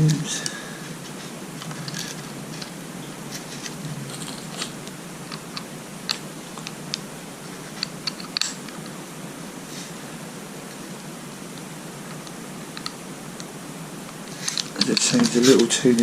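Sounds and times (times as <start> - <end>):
steady hiss: 0.0 - 16.0
metal parts clicking: 7.8 - 8.6, 14.4 - 15.8.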